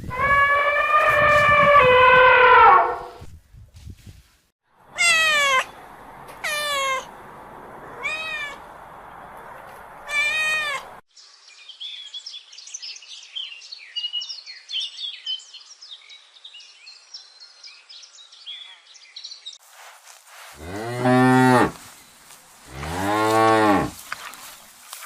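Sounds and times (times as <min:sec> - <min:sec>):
cat meowing: 0:04.9 - 0:05.7, 0:06.4 - 0:07.1, 0:08.0 - 0:08.6, 0:10.0 - 0:10.9
background hiss: 0:19.6 - 0:25.0.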